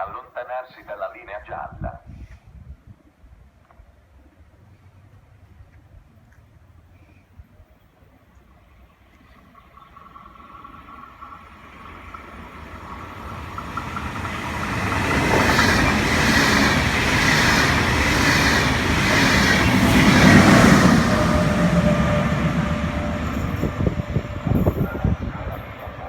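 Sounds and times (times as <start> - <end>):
train passing: 8.5 - 26.0
train wheel clatter: 9.6 - 26.0.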